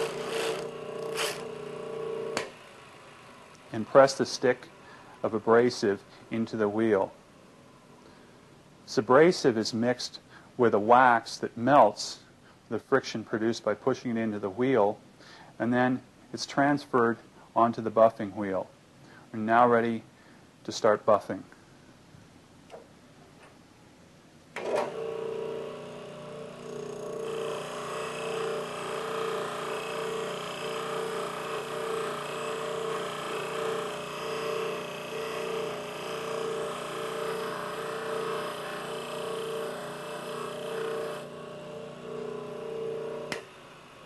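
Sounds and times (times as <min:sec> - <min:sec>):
bench buffer humming: 0:00.0 - 0:04.0, 0:24.6 - 0:44.0.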